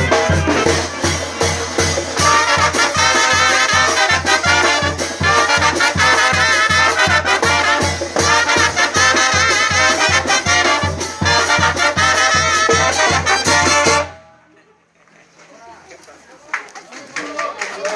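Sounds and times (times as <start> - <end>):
brass band playing: 0.0 - 14.3.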